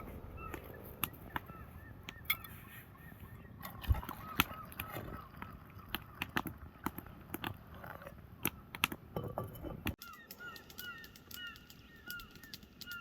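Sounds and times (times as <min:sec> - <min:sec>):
bird chirping: 0:00.0 - 0:06.2, 0:10.0 - 0:13.0
sharp clicks and crackles: 0:04.3 - 0:09.0, 0:09.8 - 0:13.0.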